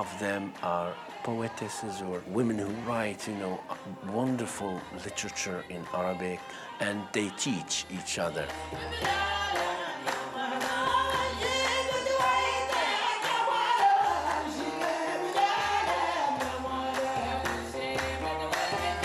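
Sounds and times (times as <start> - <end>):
voices singing together: 0.0 - 19.0
percussive beats: 7.9 - 19.0.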